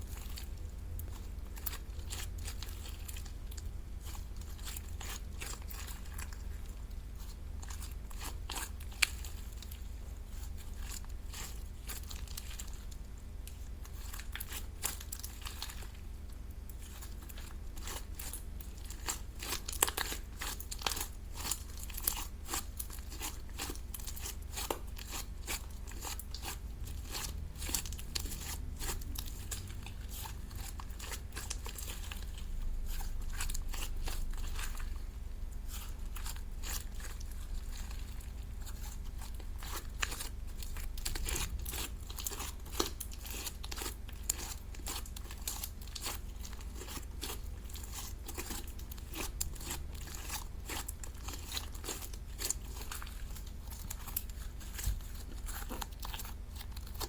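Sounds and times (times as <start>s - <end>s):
steady low hum: 0.0s - 57.0s
slime crackling and clicking: 38.6s - 57.0s.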